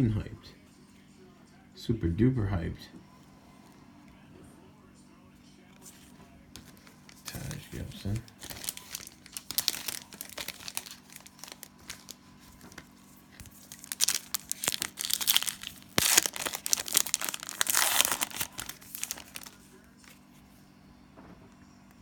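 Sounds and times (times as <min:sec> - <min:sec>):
cellophane wrapper crinkling: 0:06.6 - 0:20.2.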